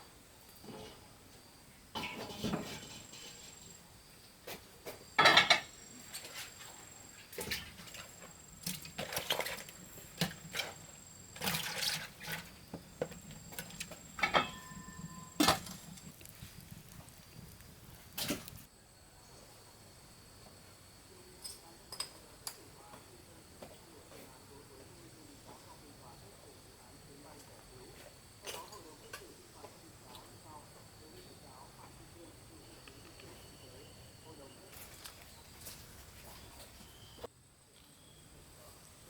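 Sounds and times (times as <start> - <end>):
scraping rustles: 5.9 - 18.7.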